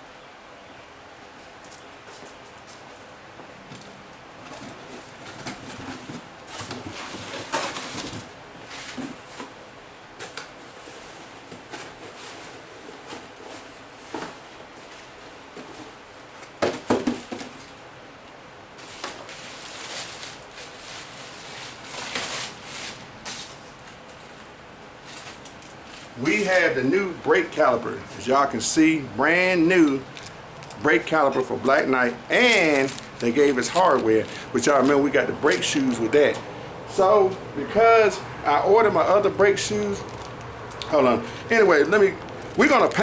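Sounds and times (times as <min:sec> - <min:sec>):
cardboard box scraping and rustling: 0:04.4 - 0:17.7, 0:18.8 - 0:23.8.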